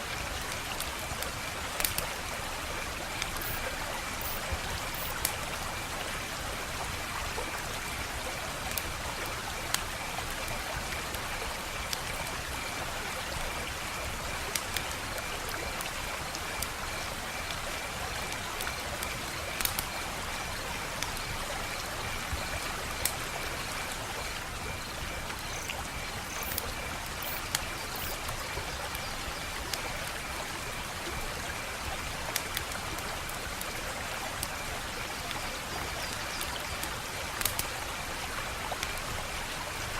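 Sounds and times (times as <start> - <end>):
wood fire crackling: 37.4 - 37.6.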